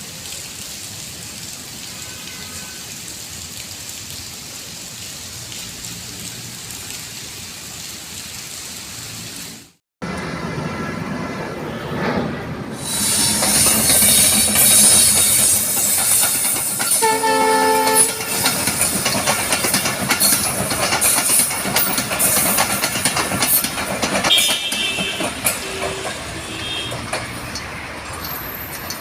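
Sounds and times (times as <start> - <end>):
rain hissing: 0.0 - 10.4, 12.7 - 29.0
train horn blast: 1.9 - 3.0, 16.9 - 18.6, 24.3 - 27.1
train running past: 10.0 - 29.0.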